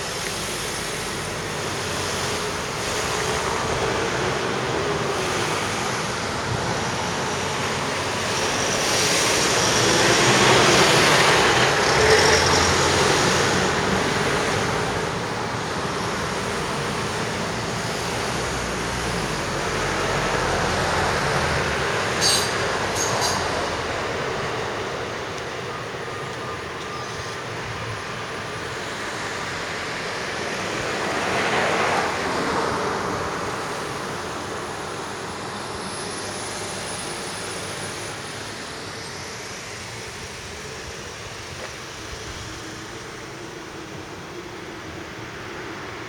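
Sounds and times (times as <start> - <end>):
steady rushing noise: 0.0 - 46.0
train passing: 0.0 - 46.0.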